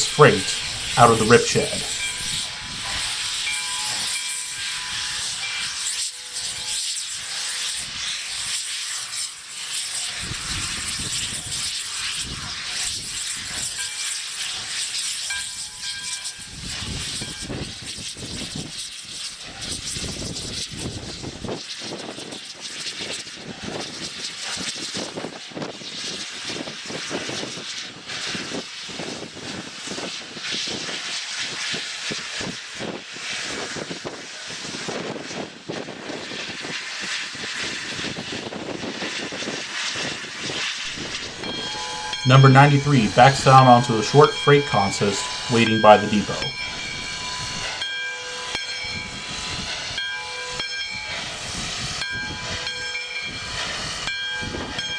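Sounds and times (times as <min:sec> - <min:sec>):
steam locomotive moving: 0:00.0 - 0:09.0, 0:40.8 - 0:54.1.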